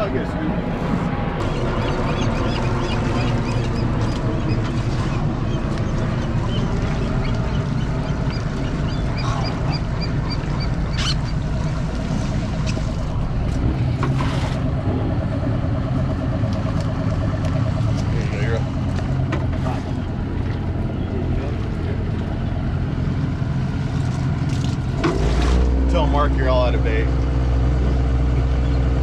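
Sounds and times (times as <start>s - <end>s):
boat engine idling: 0.0s - 29.0s.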